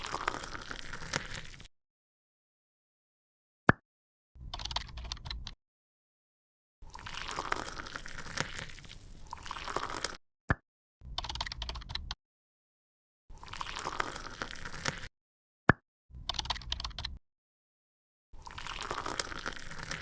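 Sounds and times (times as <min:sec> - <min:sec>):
slime squishing and crackling: 0:00.0 - 0:01.7, 0:06.9 - 0:10.2, 0:13.4 - 0:15.1, 0:18.4 - 0:20.0.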